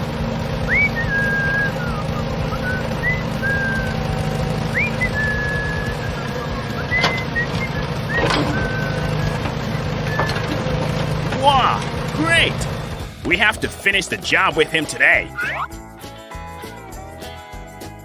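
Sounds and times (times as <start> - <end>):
low motor hum: 0.0 - 13.6
whistled rising notes: 0.6 - 11.0, 15.3 - 15.9.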